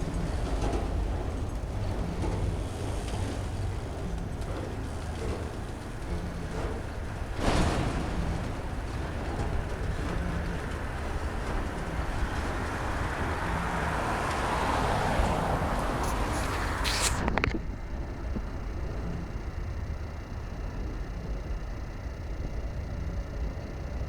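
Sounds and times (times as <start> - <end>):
freight train rolling past: 0.0 - 17.2.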